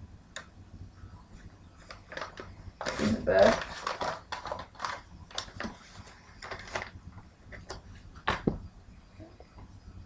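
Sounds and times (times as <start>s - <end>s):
packaging clicks and rustles: 1.9s - 8.5s.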